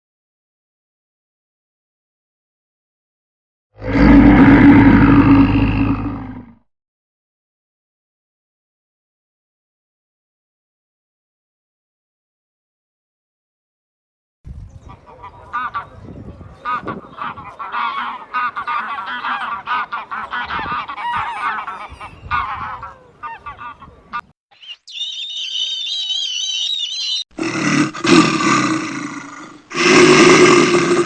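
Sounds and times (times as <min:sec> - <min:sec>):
deep animal calls: 0:14.8 - 0:24.3
farm fowl honking: 0:14.8 - 0:24.3.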